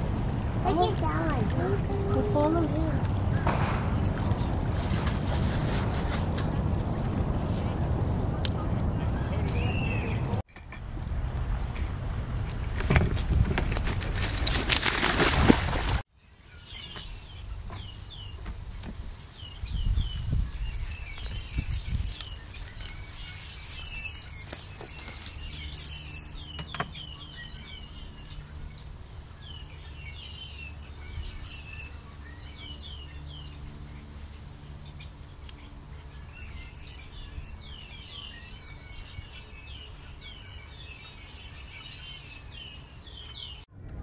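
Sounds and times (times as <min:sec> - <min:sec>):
low steady background rumble: 0:00.0 - 0:13.6, 0:16.4 - 0:44.0
low thumps: 0:03.0 - 0:05.6
small birds chirping: 0:08.6 - 0:10.4, 0:16.2 - 0:43.7.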